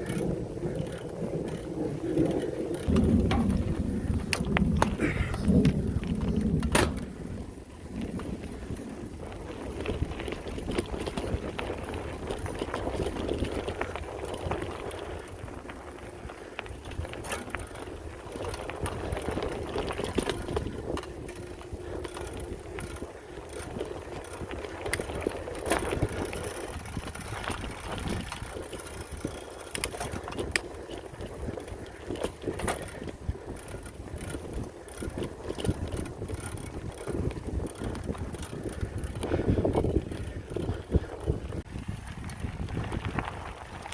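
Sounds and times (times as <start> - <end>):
low steady rumble: 0.0 - 29.8
bike frame and chain rattling: 0.0 - 43.9.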